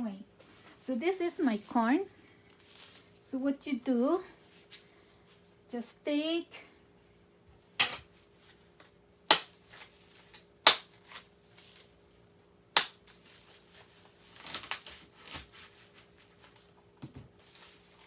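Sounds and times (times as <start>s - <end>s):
corn husk snapping: 9.3s - 9.9s, 10.6s - 11.2s, 12.8s - 13.2s, 14.3s - 15.5s.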